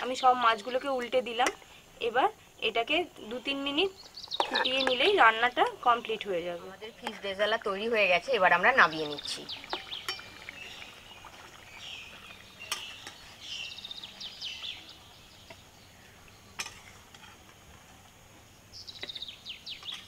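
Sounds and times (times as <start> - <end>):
small birds chirping: 0.0 - 20.0
metal spoon clinking on pan: 9.7 - 10.4.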